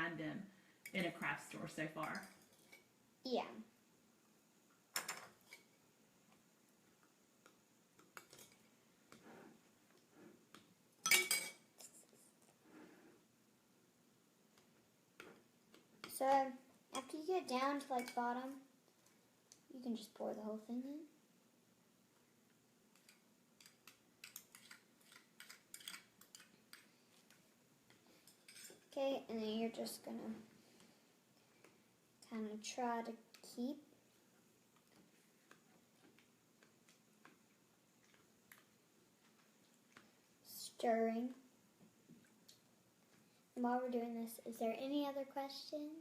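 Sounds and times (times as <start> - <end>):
spoon stirring in a cup: 23.0 - 26.9.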